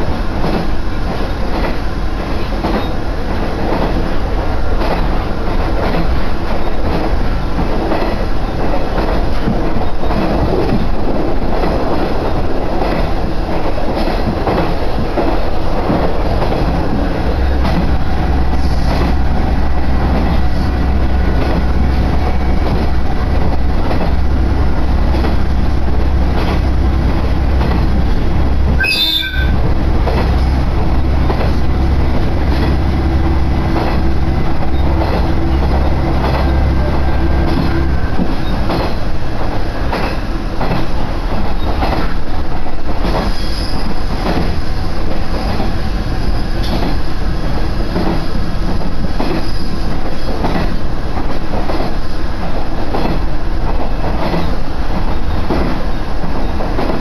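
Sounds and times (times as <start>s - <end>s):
rumble of wheels on track: 0.0s - 57.0s
low engine drone: 16.4s - 28.8s, 29.5s - 39.5s
clicking over rail joints: 33.7s - 45.8s, 47.9s - 57.0s.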